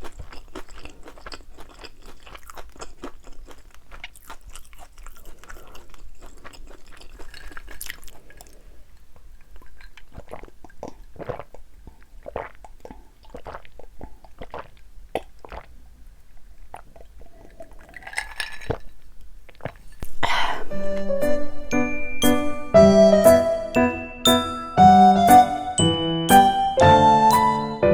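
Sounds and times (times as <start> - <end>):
person chewing crispy food: 0.0 - 21.1
wet mouth sounds: 0.0 - 21.2.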